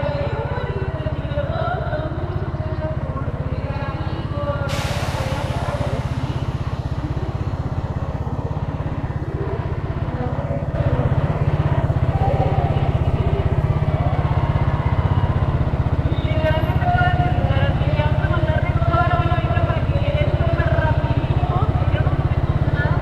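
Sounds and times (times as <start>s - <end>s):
motorcycle engine running: 0.0s - 23.0s
hiss: 4.6s - 9.8s.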